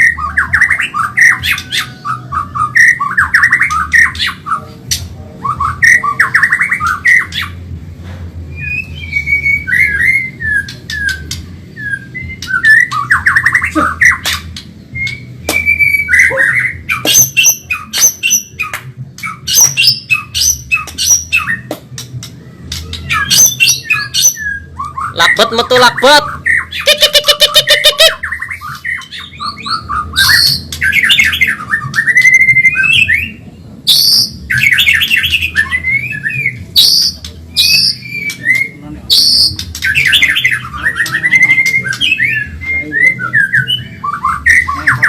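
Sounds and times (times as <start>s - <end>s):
bird singing trills and whistles: 0.0s - 7.6s, 8.5s - 45.0s.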